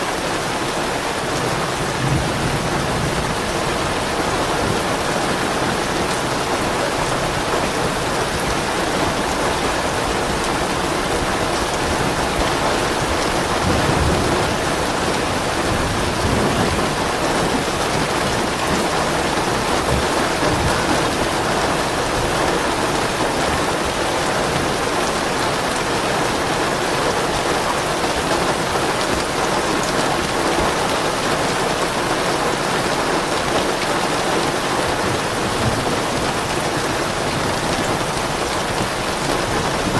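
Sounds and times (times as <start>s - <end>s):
steady rain falling: 0.0s - 39.9s
soft thunder rumbling: 1.4s - 9.8s, 11.2s - 22.4s.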